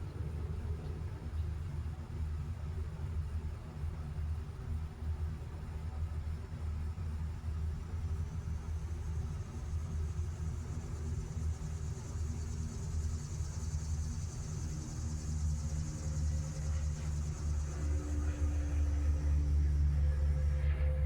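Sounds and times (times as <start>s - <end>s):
insect trill: 7.9s - 21.0s.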